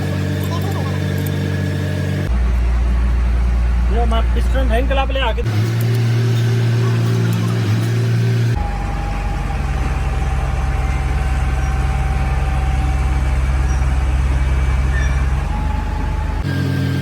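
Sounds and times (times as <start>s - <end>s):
workshop machinery drone: 0.0s - 17.0s.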